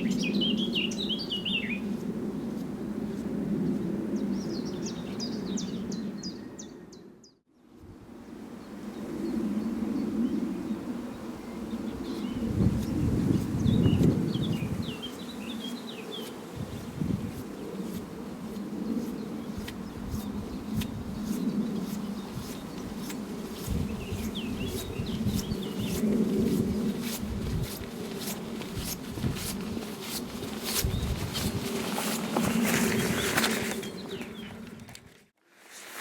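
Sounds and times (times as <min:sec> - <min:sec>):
bird chirping: 0:00.0 - 0:01.8
raincape rustling: 0:26.0 - 0:34.2.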